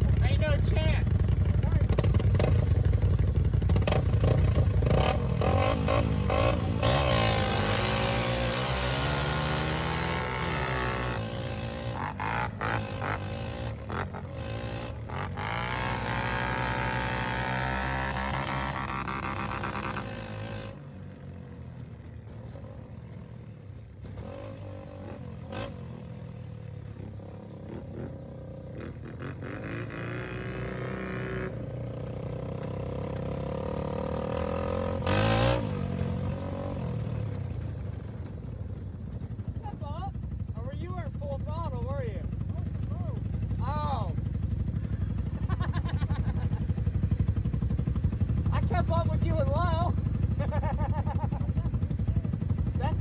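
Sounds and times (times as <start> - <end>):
off-road vehicle engine revving: 0.0 - 21.1, 24.0 - 38.3.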